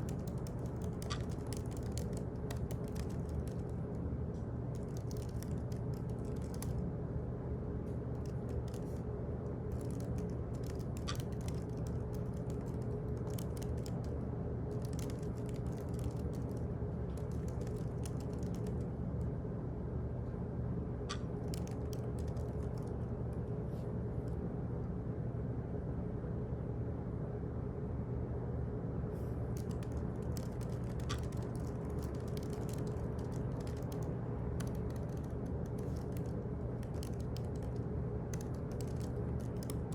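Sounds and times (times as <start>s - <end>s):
keyboard typing clicks: 0.0s - 3.8s, 4.7s - 6.8s, 8.1s - 9.0s, 9.7s - 18.9s, 21.1s - 23.1s, 29.5s - 39.9s
low ventilation hum: 0.0s - 39.9s.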